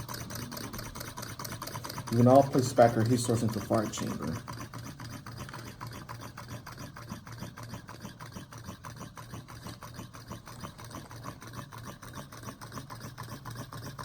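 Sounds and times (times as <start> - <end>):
engine crank ticking: 0.0 - 14.0
steady low hum: 0.0 - 14.0.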